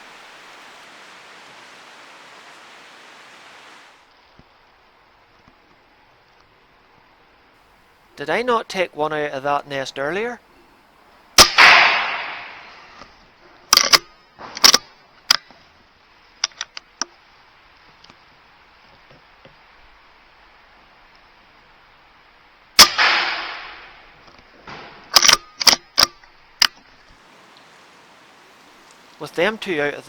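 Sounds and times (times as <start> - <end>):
air rifle shots: 11.4 - 13.0, 22.8 - 26.1
sharp clicks: 13.7 - 15.5, 16.4 - 17.1, 25.1 - 27.7.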